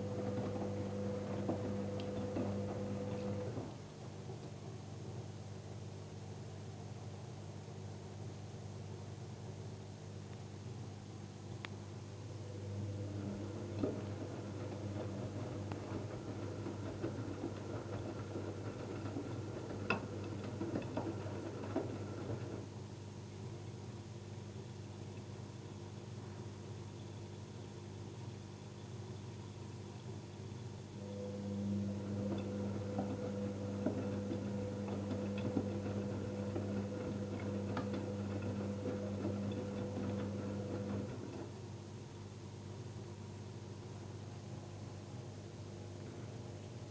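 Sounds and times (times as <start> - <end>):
washing machine humming: 0.0 - 4.9, 12.2 - 23.0, 31.0 - 42.1.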